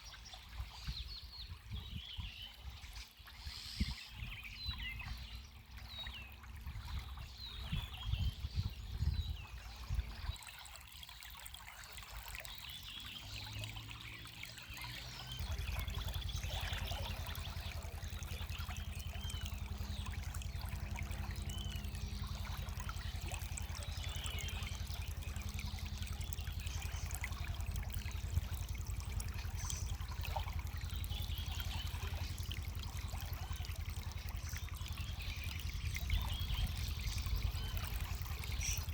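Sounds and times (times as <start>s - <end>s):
water trickling and pouring: 4.6s - 38.9s
small birds chirping: 12.2s - 38.9s.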